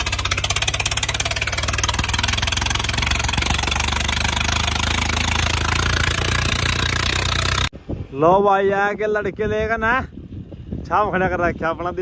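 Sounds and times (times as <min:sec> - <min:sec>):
tractor diesel engine idling: 0:00.0 - 0:07.7.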